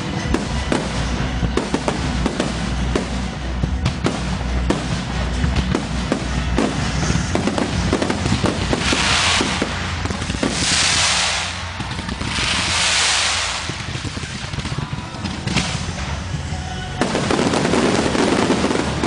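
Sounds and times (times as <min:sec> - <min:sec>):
fireworks popping and banging: 0:00.0 - 0:19.0
crackling hiss of bursting shells: 0:05.7 - 0:16.2.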